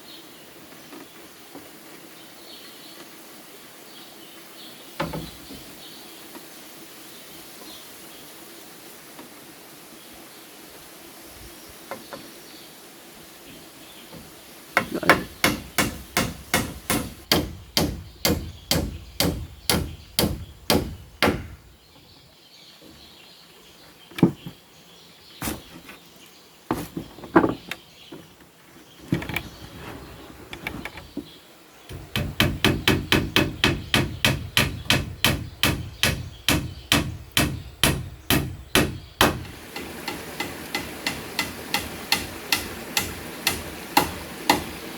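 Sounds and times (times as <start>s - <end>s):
hammer striking wood: 14.2s - 21.7s, 31.9s - 44.9s.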